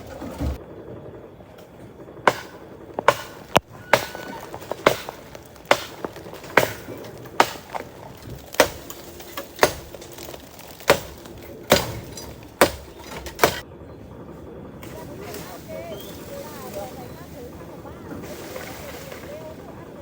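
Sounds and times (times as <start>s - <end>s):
hand tool striking wood: 2.3s - 13.6s.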